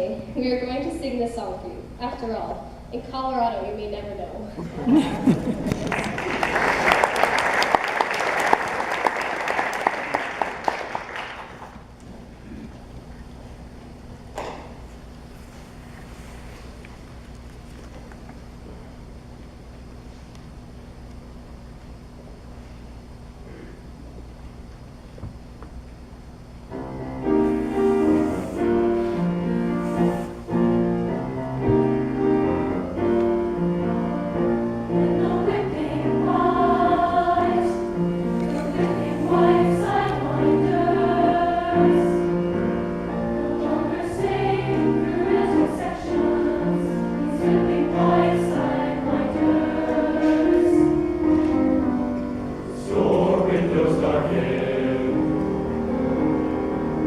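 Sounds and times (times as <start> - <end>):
choir singing: 26.7 - 57.0
piano accompaniment: 26.7 - 57.0.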